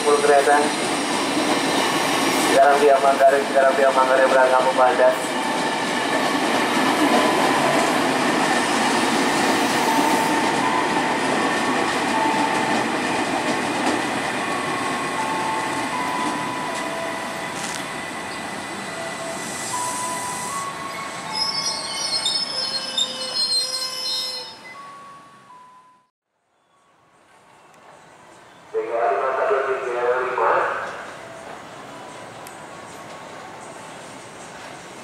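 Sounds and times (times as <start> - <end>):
train cars rumbling: 0.0 - 24.8
train wheels squealing: 8.8 - 10.9, 19.0 - 25.5.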